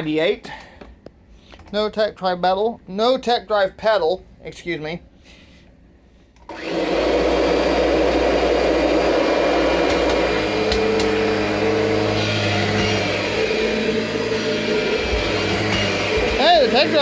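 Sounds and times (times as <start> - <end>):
vacuum cleaner motor: 6.5 - 17.0.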